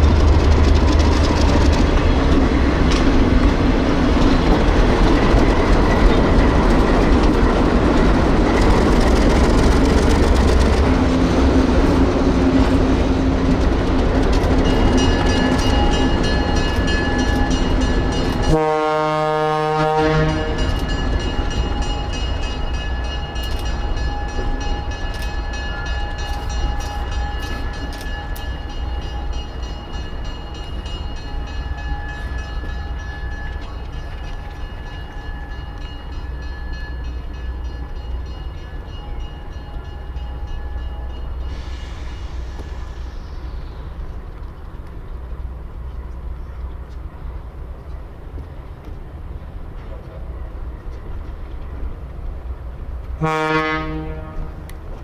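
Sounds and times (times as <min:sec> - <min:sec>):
train rumbling: 0:00.0 - 0:55.0
train horn blast: 0:18.4 - 0:20.8, 0:53.2 - 0:54.7.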